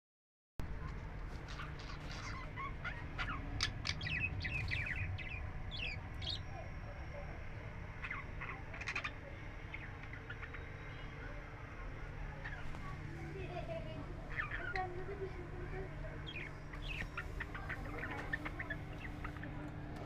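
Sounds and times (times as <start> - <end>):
low steady rumble: 0.6 - 20.0
budgerigars chirping: 1.4 - 7.3, 8.0 - 11.4, 14.3 - 14.9, 16.2 - 19.6.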